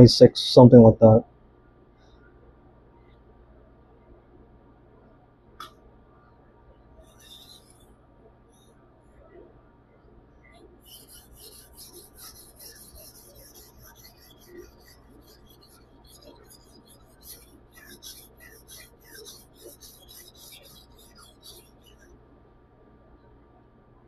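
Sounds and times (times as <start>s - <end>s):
knife scraping on whetstone: 10.9s - 22.0s.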